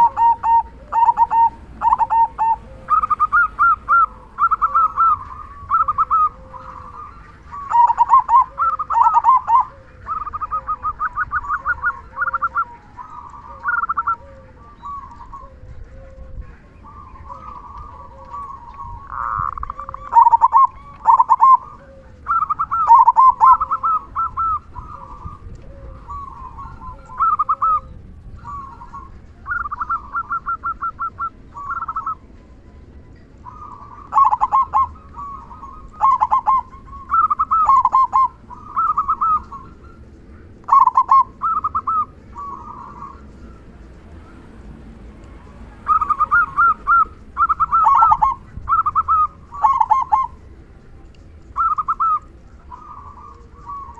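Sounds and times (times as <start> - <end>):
dove cooing: 0.0 - 32.5, 33.4 - 50.6, 51.4 - 53.9.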